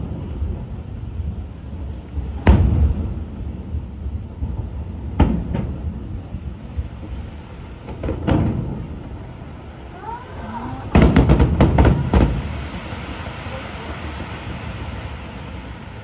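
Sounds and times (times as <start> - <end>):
firework shells bursting: 10.9 - 14.0.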